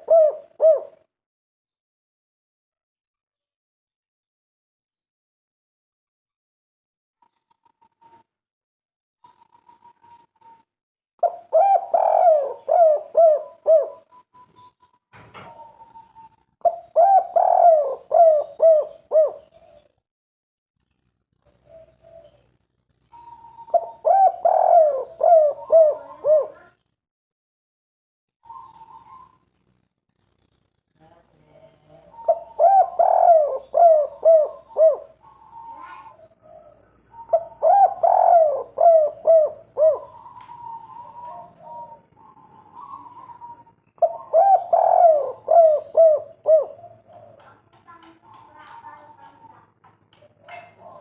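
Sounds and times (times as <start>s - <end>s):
dove cooing: 0.0s - 1.1s, 11.2s - 19.9s, 21.4s - 22.5s, 23.1s - 26.7s, 28.4s - 29.4s, 32.0s - 51.0s.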